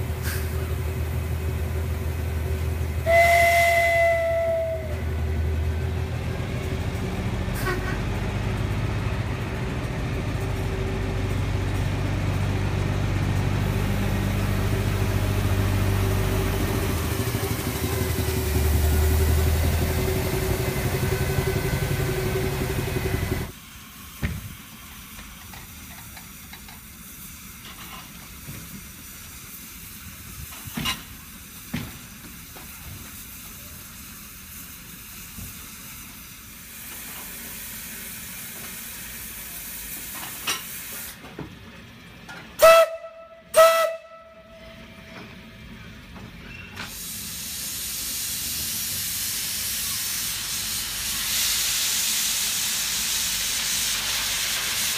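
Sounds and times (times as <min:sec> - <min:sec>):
locomotive hiss and hum: 0:00.0 - 0:42.8, 0:43.4 - 0:54.9.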